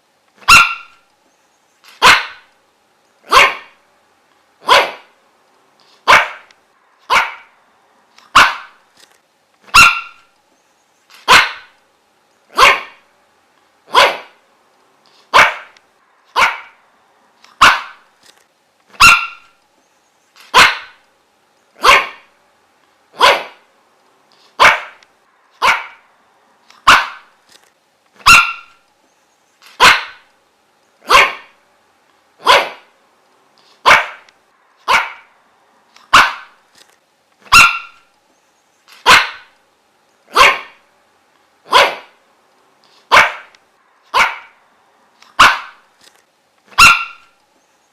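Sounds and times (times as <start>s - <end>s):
dog barking: 0.4s - 1.0s, 2.0s - 2.5s, 3.2s - 3.8s, 4.6s - 5.2s, 6.0s - 6.5s, 7.1s - 7.6s, 8.3s - 8.8s, 9.7s - 10.3s, 11.2s - 11.8s, 12.5s - 13.0s, 13.9s - 14.4s, 15.3s - 16.8s, 17.6s - 18.0s, 19.0s - 19.6s, 20.5s - 21.0s, 21.8s - 22.3s, 23.1s - 23.7s, 24.6s - 25.0s, 25.6s - 26.1s, 26.8s - 27.3s, 28.2s - 28.8s, 29.8s - 30.3s, 31.0s - 31.6s, 32.4s - 32.9s, 33.8s - 35.3s, 36.1s - 36.6s, 37.5s - 38.1s, 39.0s - 39.5s, 40.3s - 40.8s, 41.7s - 42.2s, 43.1s - 43.5s, 44.1s - 44.6s, 45.4s - 45.8s, 46.7s - 47.4s.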